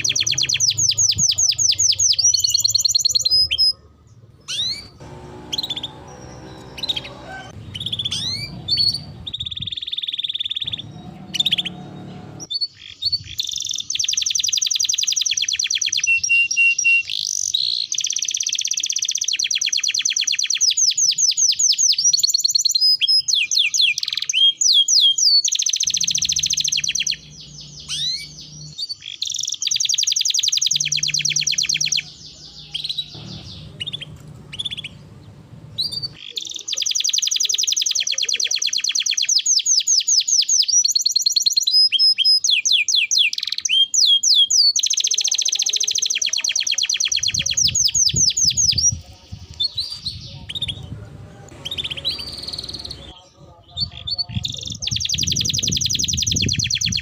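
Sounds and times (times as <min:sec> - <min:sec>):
canary singing trills: 0:00.0 - 0:57.0
bird chirps and whistles: 0:07.7 - 0:11.7, 0:12.5 - 0:33.1, 0:36.8 - 0:48.9.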